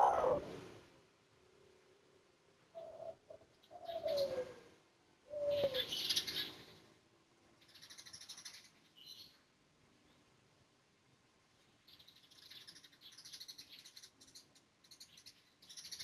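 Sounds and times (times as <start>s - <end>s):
dove cooing: 0.0s - 0.6s, 2.8s - 4.7s, 5.3s - 6.4s
small birds chirping: 2.7s - 4.5s, 5.3s - 6.9s, 7.5s - 10.4s, 11.5s - 16.0s.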